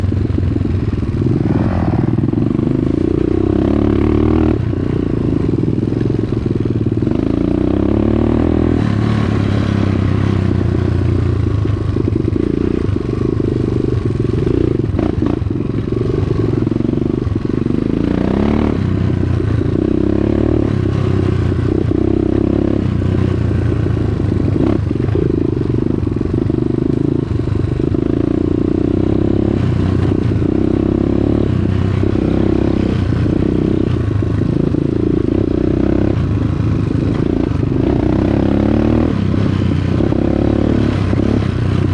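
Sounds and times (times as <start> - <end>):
dirt bike engine revving: 0.6 - 41.9.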